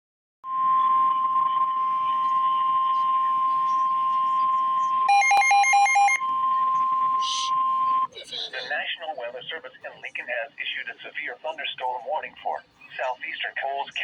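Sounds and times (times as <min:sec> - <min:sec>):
alternating high beeps: 0:03.6 - 0:08.1
steady alert tone: 0:05.1 - 0:06.2.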